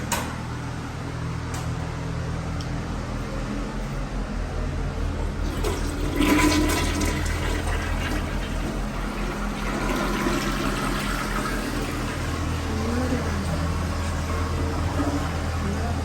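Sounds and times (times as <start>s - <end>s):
steady low hum: 0.0s - 16.0s
toilet flushing: 5.0s - 16.0s.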